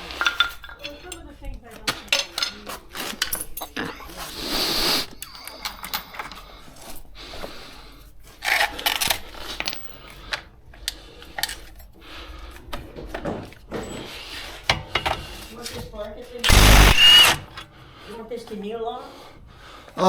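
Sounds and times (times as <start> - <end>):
sharp clicks: 16.5 - 17.5.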